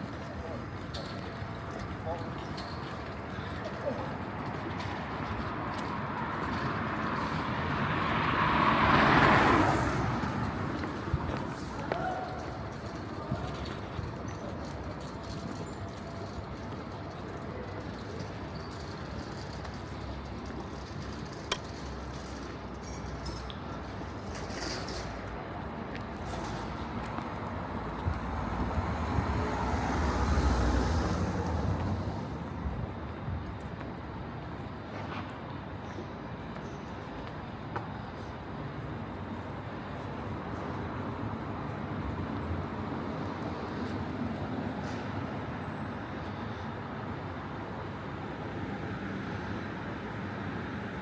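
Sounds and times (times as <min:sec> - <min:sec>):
road traffic noise: 0:00.0 - 0:51.0
road vehicle passing by: 0:05.3 - 0:14.0, 0:24.4 - 0:32.9.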